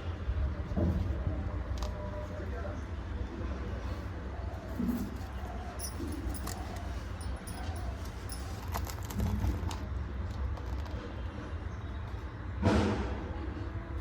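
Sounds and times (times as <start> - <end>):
steady low hum: 3.6 - 8.8.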